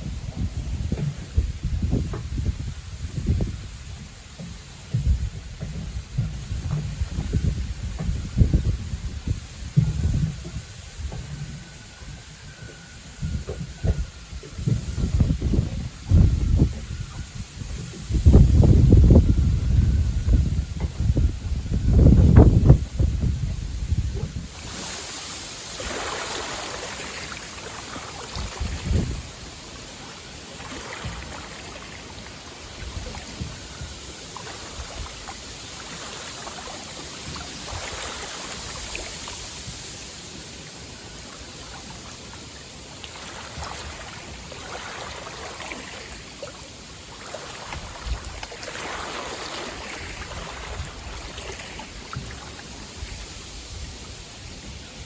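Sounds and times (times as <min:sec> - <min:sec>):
wind gust on microphone: 0:00.0 - 0:31.8, 0:47.2 - 0:55.0
waves lapping against shore: 0:00.0 - 0:55.0.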